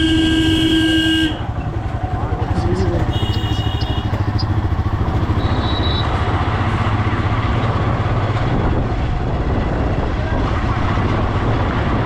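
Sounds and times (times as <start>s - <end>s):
motorcycle engine rumbling: 0.0s - 12.0s
road noise: 0.0s - 12.0s
wind noise: 3.2s - 12.0s.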